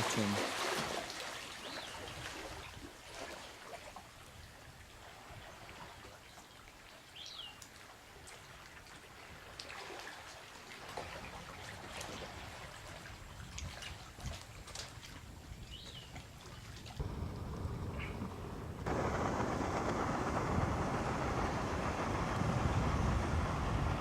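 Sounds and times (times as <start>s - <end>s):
water trickling and dripping: 0.0s - 17.1s.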